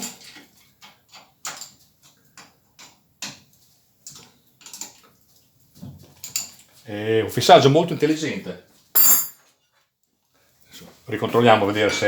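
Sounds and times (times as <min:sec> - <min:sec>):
metal tools clicking and tapping: 0:09.0 - 0:09.4.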